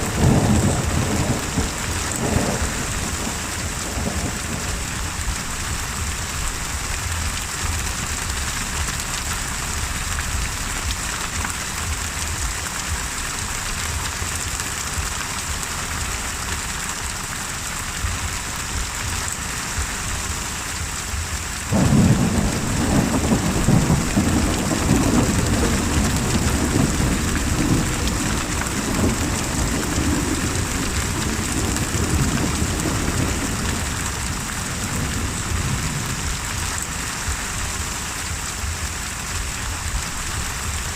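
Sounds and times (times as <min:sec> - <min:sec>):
thunderclap rumbling: 0:00.0 - 0:13.2, 0:21.6 - 0:38.5
heavy rain: 0:00.0 - 0:40.9.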